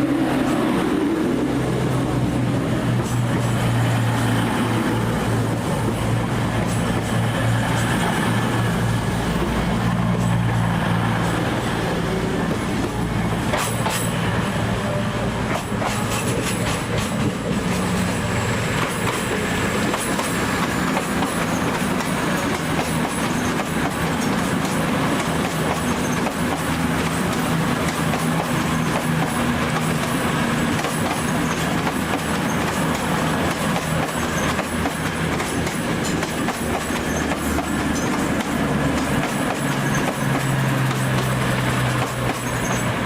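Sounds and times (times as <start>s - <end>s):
train engine hum: 0.0s - 43.0s
train wheels clicking on rail joints: 0.4s - 14.6s, 15.4s - 43.0s
faint high wheel squeal: 25.7s - 26.4s, 36.7s - 38.3s, 39.4s - 41.4s, 42.2s - 43.0s.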